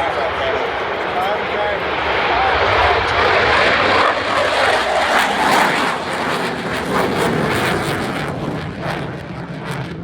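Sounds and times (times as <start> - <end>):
jet engines roaring with crackle: 0.0 - 10.0.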